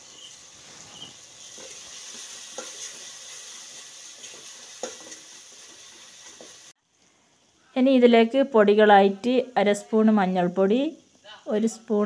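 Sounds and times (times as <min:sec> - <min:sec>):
food sizzling in oil: 0:00.0 - 0:06.8.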